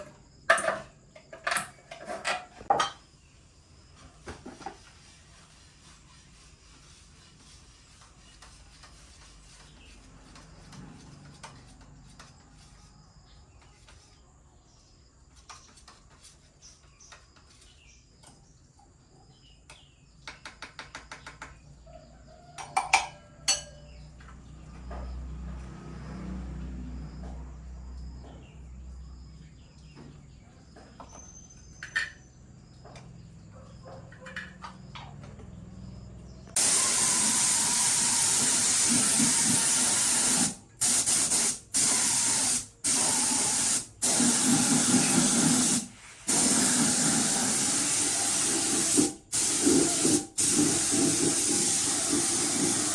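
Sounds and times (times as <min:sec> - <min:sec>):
spraying air hiss: 0:36.6 - 0:52.9.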